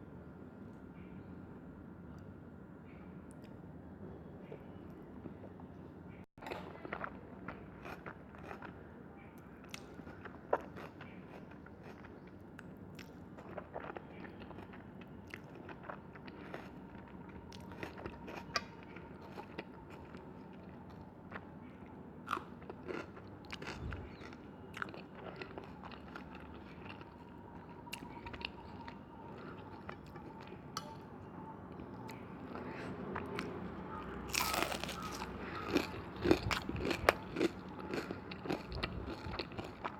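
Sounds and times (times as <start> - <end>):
person chewing food: 6.4 - 8.8, 9.7 - 21.7, 22.3 - 31.1, 31.7 - 39.9.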